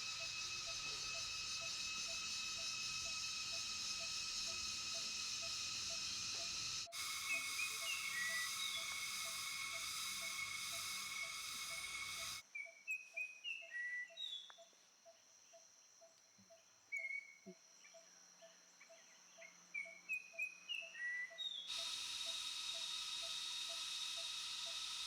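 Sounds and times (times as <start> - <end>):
bird calling high notes: 0.0 - 12.4
insects ticking: 0.0 - 12.4, 21.7 - 25.0.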